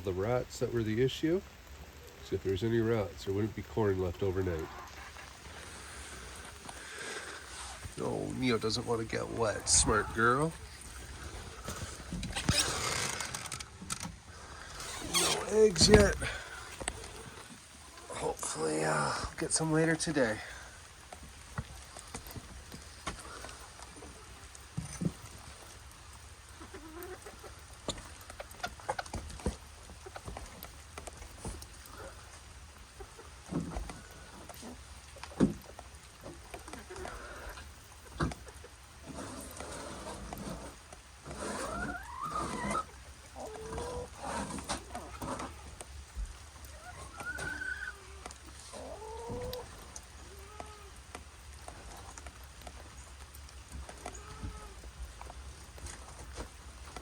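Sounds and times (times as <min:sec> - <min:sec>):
hens clucking softly: 0:14.4 - 0:19.3, 0:20.2 - 0:57.0
small ticks: 0:43.8 - 0:57.0.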